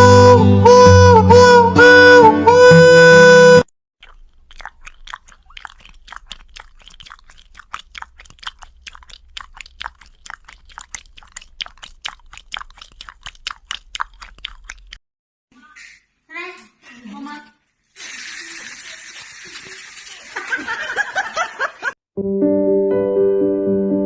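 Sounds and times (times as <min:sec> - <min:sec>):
song: 0:00.0 - 0:03.6
cat chewing with crunch: 0:04.0 - 0:15.0.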